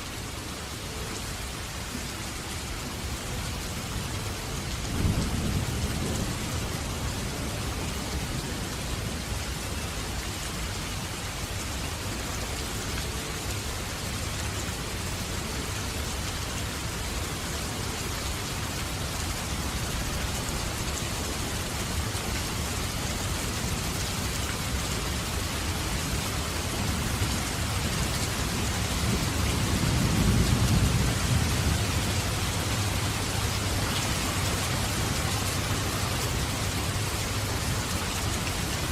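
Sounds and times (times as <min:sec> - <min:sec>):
heavy rain pouring: 0:00.0 - 0:38.9
low roll of thunder: 0:28.9 - 0:32.2.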